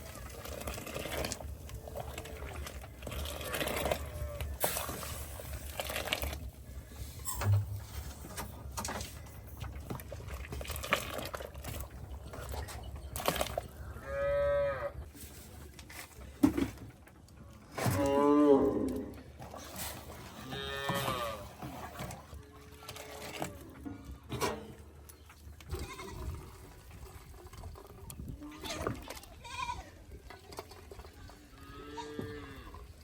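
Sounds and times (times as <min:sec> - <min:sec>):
cattle mooing: 0:14.0 - 0:14.9, 0:31.6 - 0:32.8.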